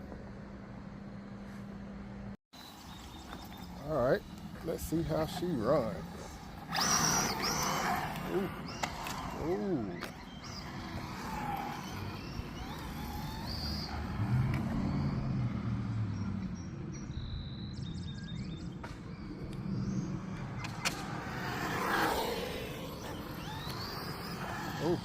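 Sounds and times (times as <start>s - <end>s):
small tyres running over ground: 2.6s - 25.0s
toy car electric motor: 4.7s - 15.1s, 20.9s - 25.0s.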